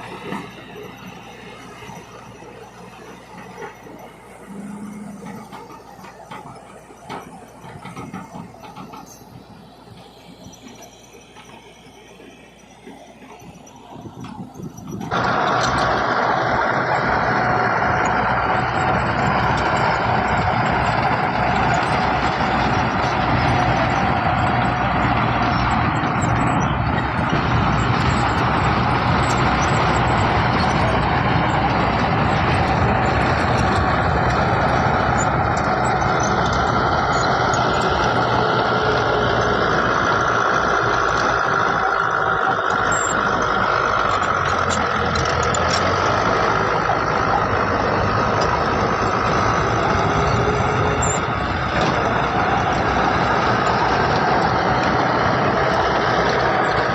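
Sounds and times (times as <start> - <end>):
heavy diesel machinery running: 0.0 - 56.9
faint high whine: 0.1 - 15.0.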